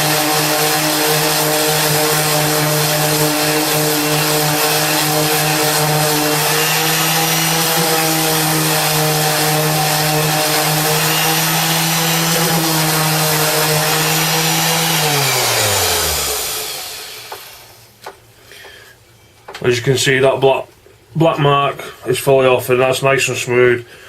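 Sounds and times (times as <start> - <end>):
orbital sander sanding wood: 0.0 - 17.8
sander motor winding down: 0.0 - 17.8.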